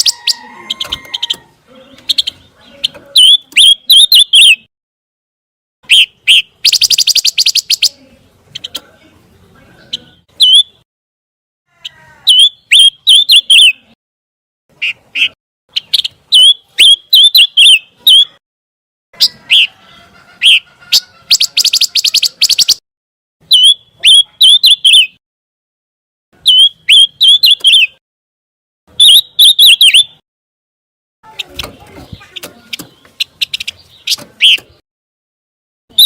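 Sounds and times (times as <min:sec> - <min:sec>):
bird chirping: 0:00.0 - 0:04.7, 0:05.8 - 0:10.8, 0:11.8 - 0:14.0, 0:14.7 - 0:18.4, 0:19.2 - 0:22.8, 0:23.4 - 0:25.2, 0:26.4 - 0:28.0, 0:28.9 - 0:30.2, 0:31.2 - 0:34.8.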